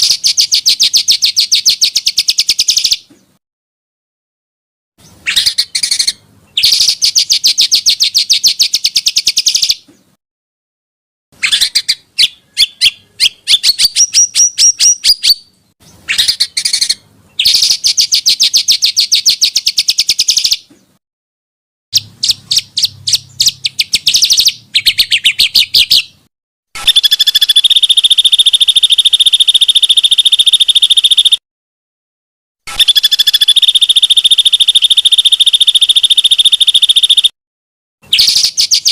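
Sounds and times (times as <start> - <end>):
songbirds singing trills: 0.0 - 3.4, 5.0 - 10.2, 11.4 - 21.0, 22.0 - 31.4, 32.7 - 37.3, 38.0 - 38.9
fast high bird trill: 26.8 - 31.4, 32.7 - 37.3.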